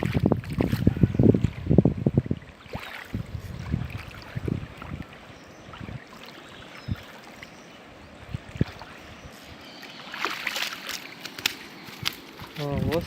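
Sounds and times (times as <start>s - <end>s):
water sloshing and lapping: 0.0s - 13.0s.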